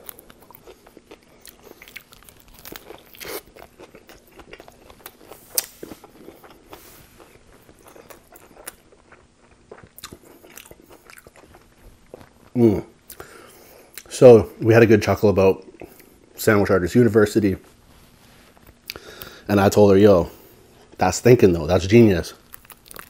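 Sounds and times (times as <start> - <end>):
crisp crunches of lettuce: 0.0 - 12.7, 22.2 - 23.0
wet chewing: 0.0 - 14.1, 22.4 - 23.0.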